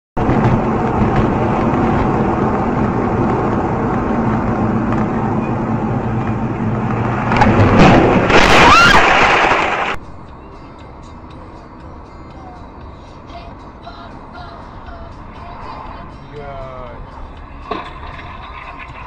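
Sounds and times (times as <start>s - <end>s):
car road and engine noise: 0.2s - 19.0s
car crash with squeal: 7.2s - 9.9s.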